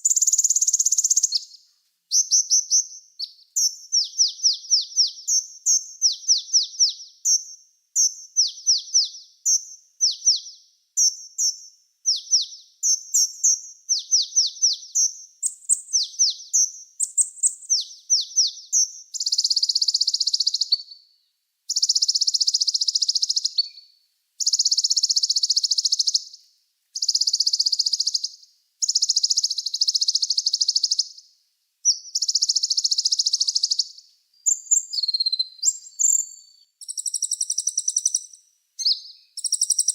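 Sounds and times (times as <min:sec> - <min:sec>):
high buzzing bird trills: 0:31.9 - 0:39.9.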